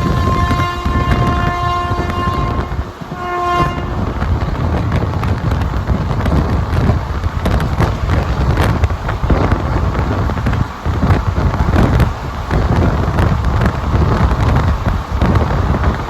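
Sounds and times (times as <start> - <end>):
locomotive horn blasts: 0.0 - 4.2
rail clicks and knocks: 0.0 - 16.0
train rumbling: 0.0 - 16.0.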